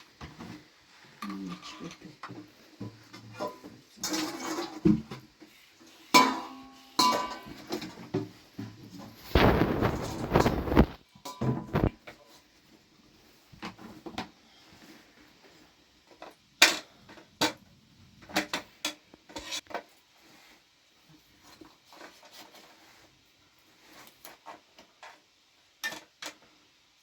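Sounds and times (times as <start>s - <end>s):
metal utensils and dishes clinking: 3.2s - 5.2s, 6.1s - 8.1s, 11.2s - 12.4s.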